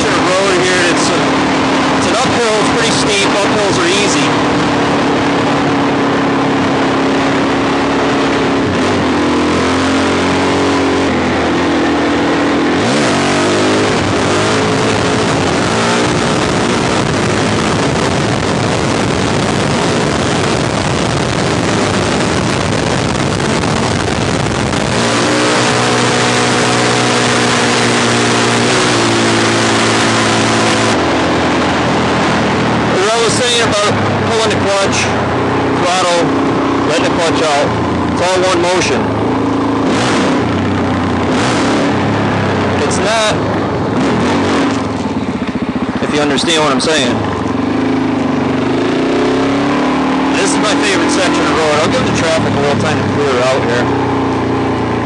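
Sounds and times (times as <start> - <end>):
motorcycle engine accelerating: 0.0 - 55.0
wind noise on microphone: 13.8 - 26.1.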